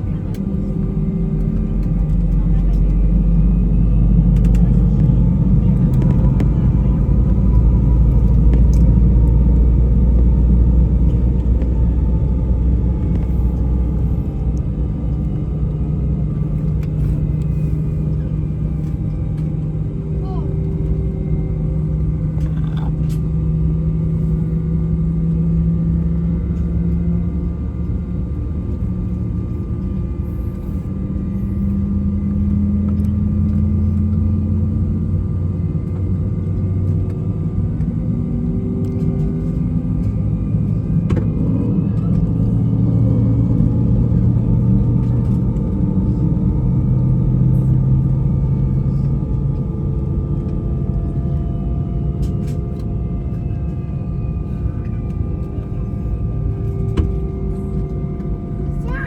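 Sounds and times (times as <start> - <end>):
low rumble: 0.0 - 59.0.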